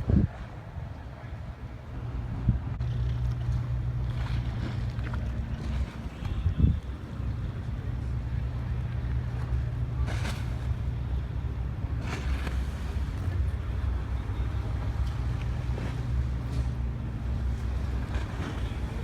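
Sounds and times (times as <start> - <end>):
wind gusts on microphone: 0.0 - 2.8, 5.6 - 7.4
boat engine droning: 0.0 - 19.0.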